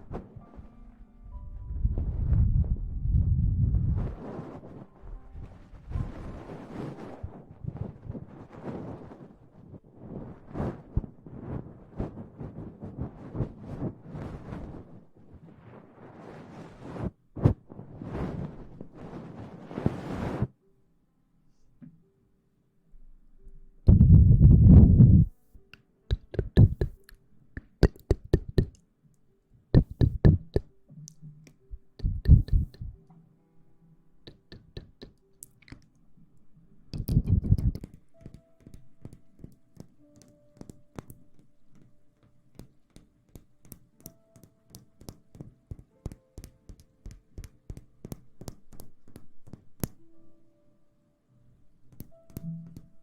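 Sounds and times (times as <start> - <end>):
faint steady background tones: 0.0 - 53.0
muffled low thumps: 1.2 - 4.2, 23.9 - 25.3, 26.1 - 27.0, 29.8 - 30.6, 31.2 - 33.0, 37.0 - 37.8
light quick taps and clicks: 25.2 - 28.8, 29.8 - 33.1, 36.9 - 50.0.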